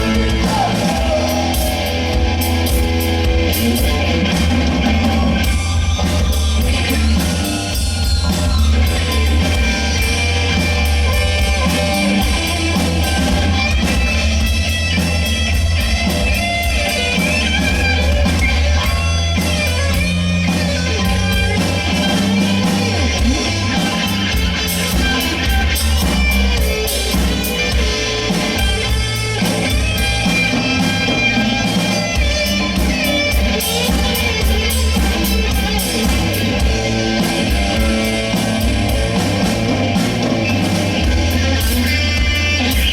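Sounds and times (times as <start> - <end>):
rock band playing live: 0.0 - 42.9.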